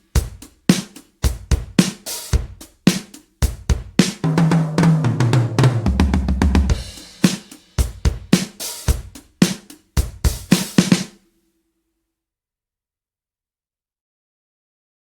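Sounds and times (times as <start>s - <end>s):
tom fill: 0.0s - 11.1s
drum kit beat: 0.0s - 11.2s.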